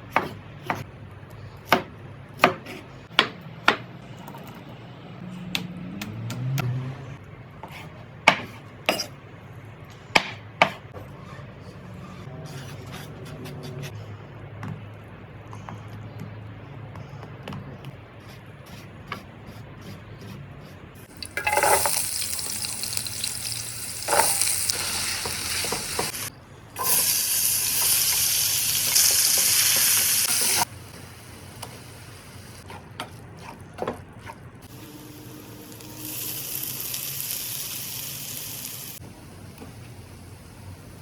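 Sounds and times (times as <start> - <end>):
liver sizzling in a pan: 21.1 - 30.6, 35.4 - 39.0.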